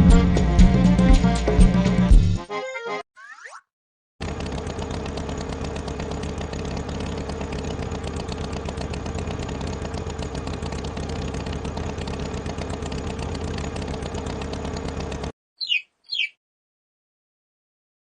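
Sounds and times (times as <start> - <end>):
tractor engine idling: 4.2 - 15.3.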